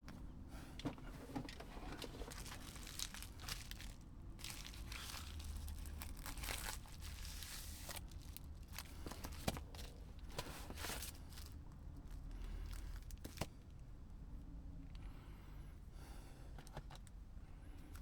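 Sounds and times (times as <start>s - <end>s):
rustling handling noise: 0.1s - 13.8s.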